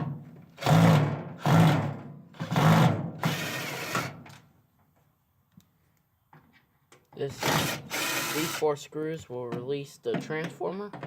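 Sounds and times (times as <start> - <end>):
power drill-driver running: 3.2 - 4.1, 7.4 - 8.6.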